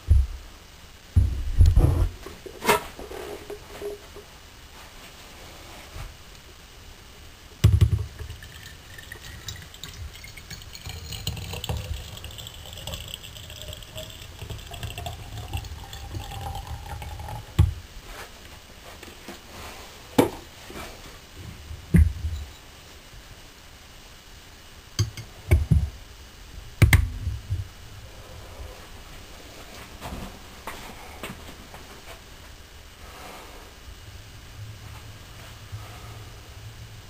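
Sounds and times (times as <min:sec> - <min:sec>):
water poured into flask: 0:08.0 - 0:17.6.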